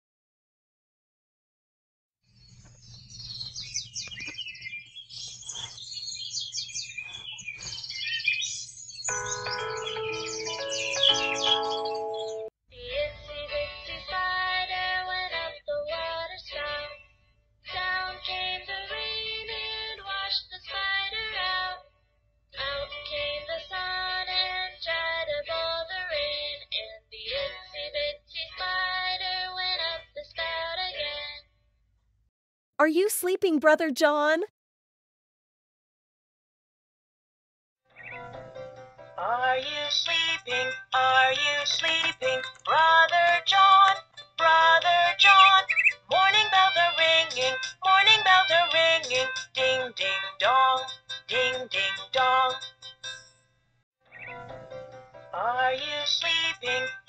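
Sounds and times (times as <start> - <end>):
songbirds chirping and trilling: 2.3 - 12.5, 38.0 - 38.4, 45.2 - 46.1
music with sustained notes: 9.1 - 12.5
children's song with synthetic voice: 9.1 - 17.0, 17.7 - 21.9, 22.6 - 31.4, 32.8 - 34.5, 39.2 - 53.2, 55.3 - 57.0.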